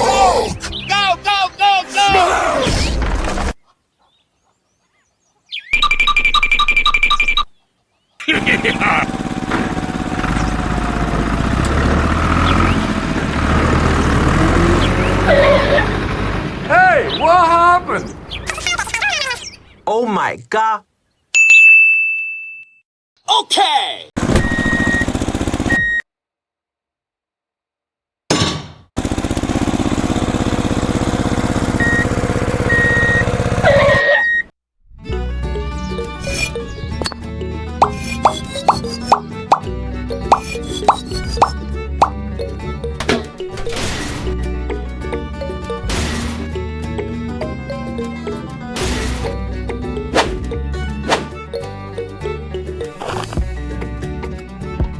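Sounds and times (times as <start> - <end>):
music: 0.0 - 2.3, 35.0 - 54.9
vehicle engine running: 8.3 - 19.0, 24.2 - 25.9, 29.0 - 34.0, 35.5 - 54.8.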